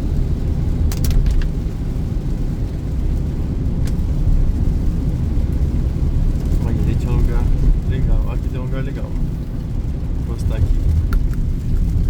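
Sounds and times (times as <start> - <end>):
car engine rumble inside cabin: 0.0 - 12.0
rain and wet road noise: 0.0 - 12.0.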